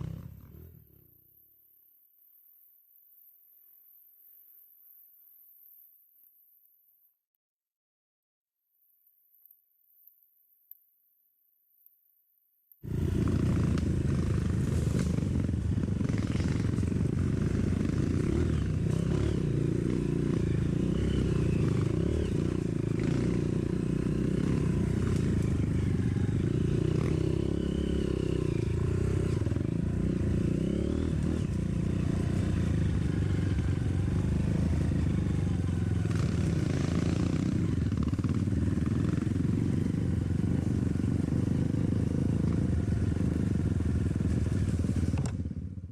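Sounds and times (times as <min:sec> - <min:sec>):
dirt bike engine running: 0:12.8 - 0:45.9.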